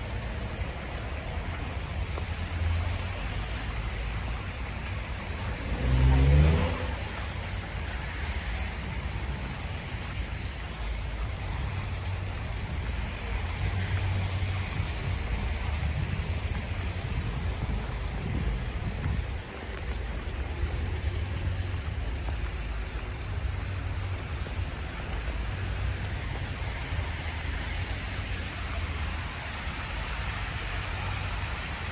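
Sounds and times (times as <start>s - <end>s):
city street traffic rumble: 0.0s - 31.9s
vehicle engine revving: 4.3s - 10.2s.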